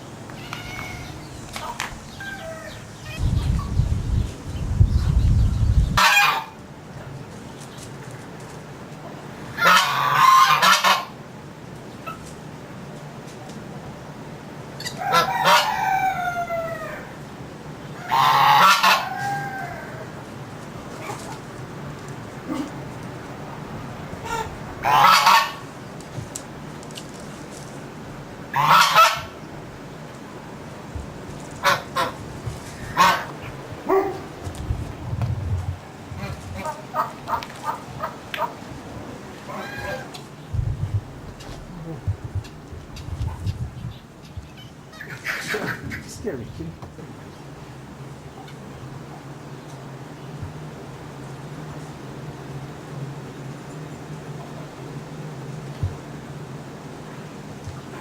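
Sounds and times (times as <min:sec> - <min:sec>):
birds calling harshly: 0:00.0 - 0:06.6, 0:20.8 - 0:26.0, 0:31.6 - 0:34.6
bird honking: 0:09.6 - 0:11.1, 0:18.0 - 0:19.8, 0:24.2 - 0:25.6, 0:28.5 - 0:29.4, 0:32.8 - 0:34.4.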